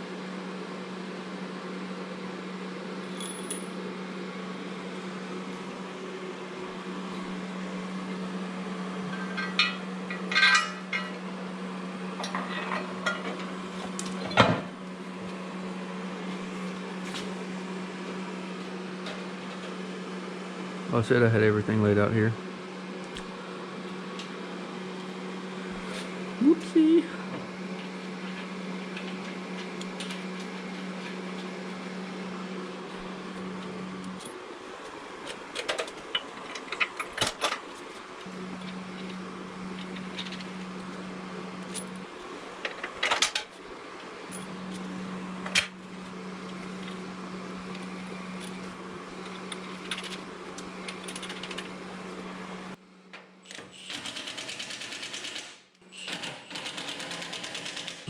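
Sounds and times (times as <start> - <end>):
steady low hum: 2.0 - 53.4
metal bolts clinking: 9.1 - 11.2.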